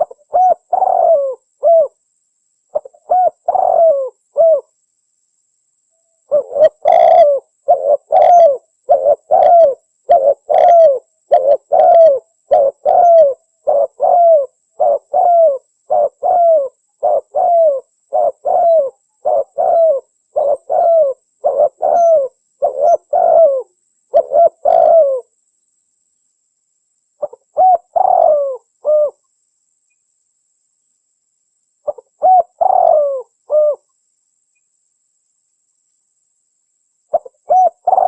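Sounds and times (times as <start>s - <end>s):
dove cooing: 0.0s - 2.0s, 2.7s - 4.7s, 6.3s - 25.3s, 27.2s - 29.2s, 31.8s - 33.9s, 37.1s - 38.0s.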